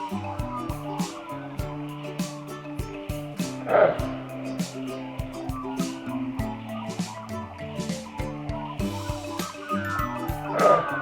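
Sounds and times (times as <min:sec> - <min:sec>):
background music with steady beat: 0:00.0 - 0:11.0
falling tones sound: 0:00.0 - 0:11.0.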